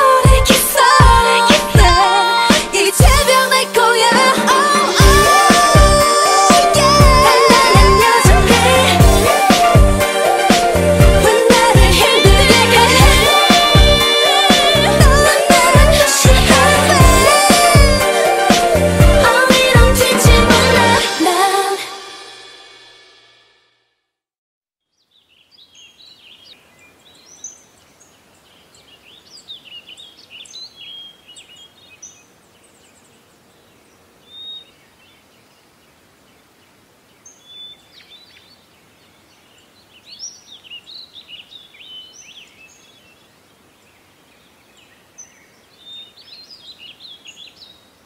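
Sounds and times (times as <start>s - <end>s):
small birds chirping: 24.8s - 48.0s
faint steady hiss: 24.9s - 48.0s.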